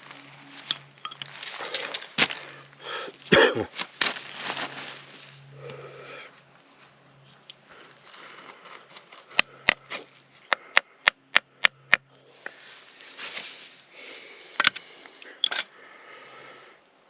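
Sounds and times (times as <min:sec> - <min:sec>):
man breathing hard and sniffing: 0:01.5 - 0:03.3, 0:05.4 - 0:06.5, 0:07.6 - 0:13.0, 0:13.8 - 0:16.8.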